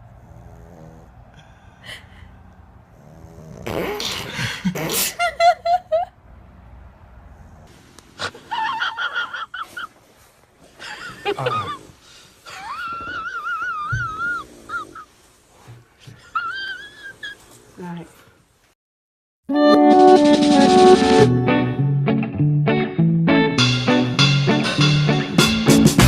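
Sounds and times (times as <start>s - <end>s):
dog whining: 0.0s - 1.3s, 12.5s - 15.2s, 16.2s - 17.8s
dog snorting: 0.0s - 5.1s, 13.2s - 16.2s.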